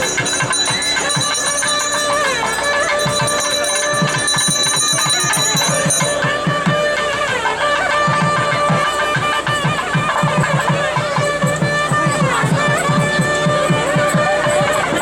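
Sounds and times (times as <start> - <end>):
bell ringing: 0.0 - 6.8
double-reed pipe melody: 0.0 - 15.0
rapid drum strokes: 0.0 - 15.0.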